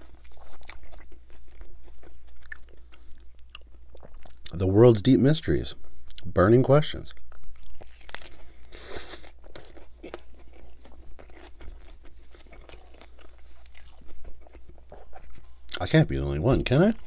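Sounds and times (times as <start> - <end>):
person chewing crunchy food: 0.0 - 4.6, 7.1 - 15.9.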